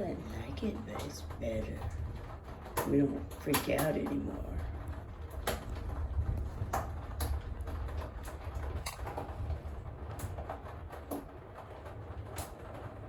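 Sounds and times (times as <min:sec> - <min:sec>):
rain falling: 0:00.0 - 0:13.0
low rumble: 0:04.1 - 0:13.0.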